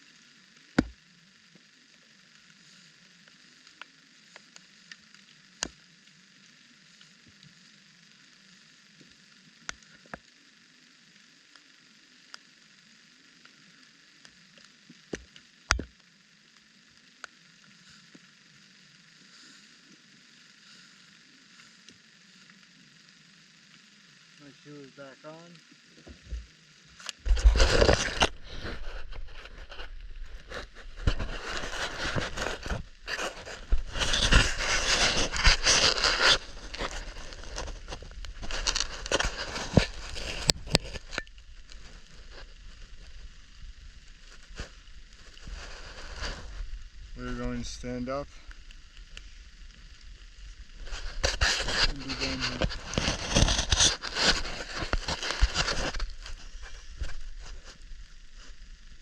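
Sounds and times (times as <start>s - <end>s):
light rain hiss: 0.0s - 59.0s
person scrambling over rock: 27.2s - 41.2s.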